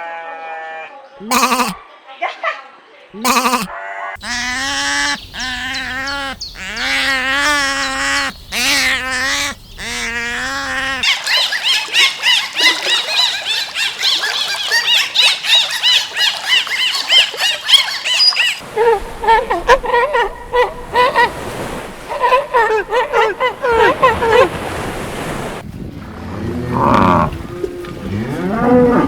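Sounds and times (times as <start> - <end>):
long wavering bleats: 0.0 - 1.8, 3.2 - 11.0.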